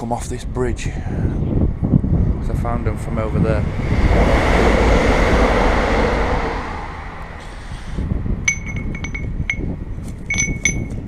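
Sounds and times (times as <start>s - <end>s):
loud rushing noise: 3.6s - 7.7s
bright metallic pings: 8.5s - 9.7s, 10.3s - 11.0s.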